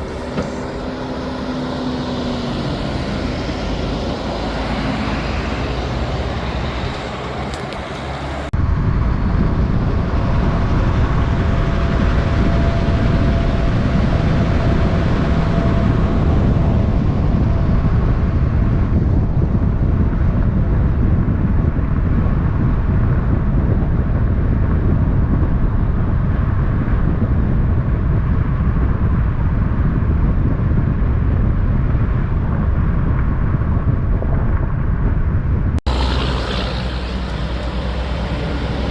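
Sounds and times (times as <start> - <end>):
road noise: 0.0 - 8.9, 35.7 - 38.9
truck engine rumble: 0.0 - 20.3, 31.2 - 38.9.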